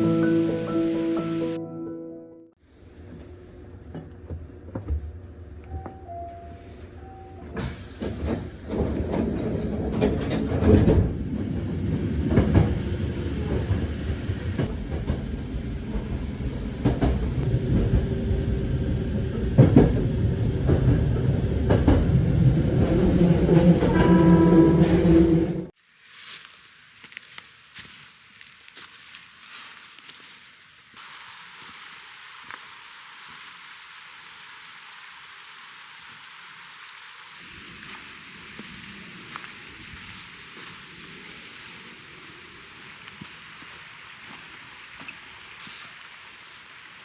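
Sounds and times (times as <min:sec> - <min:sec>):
train rumbling on rails: 0:00.0 - 0:01.6, 0:02.8 - 0:25.8, 0:31.0 - 0:47.0
high two-note tone: 0:23.9 - 0:25.1.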